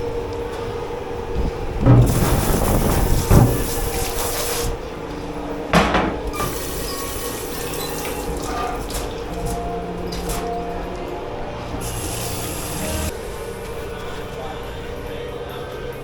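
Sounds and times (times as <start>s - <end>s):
machine hum: 0.0s - 15.4s
tap running into sink: 1.8s - 4.6s.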